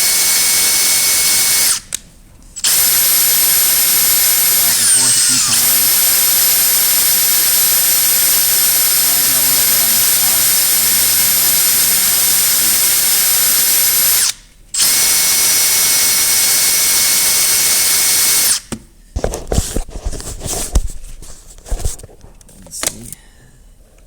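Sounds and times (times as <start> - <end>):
electric drill whining: 0.0 - 2.0, 2.6 - 18.7.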